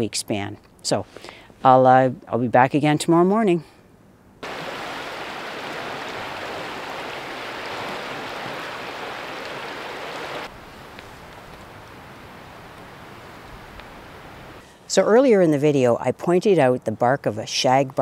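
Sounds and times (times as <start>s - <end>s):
rushing water: 4.4s - 14.6s.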